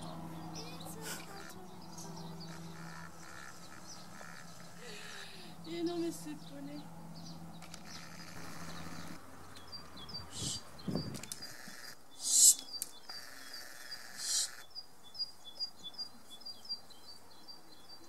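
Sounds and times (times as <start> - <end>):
small bird chirping: 0.0 - 18.0
short hissing bursts: 12.2 - 12.7, 14.2 - 14.6.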